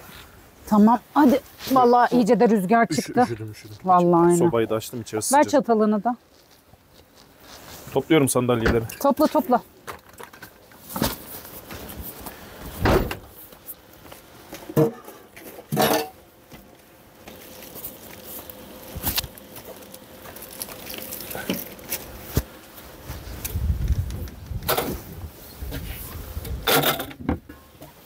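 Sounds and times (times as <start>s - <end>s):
camping gear knocking and clattering: 26.6s - 27.6s.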